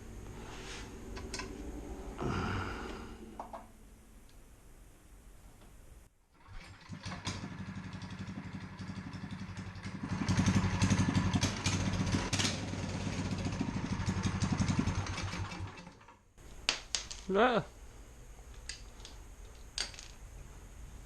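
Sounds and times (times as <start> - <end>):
go-kart engine revving: 6.4 - 16.0.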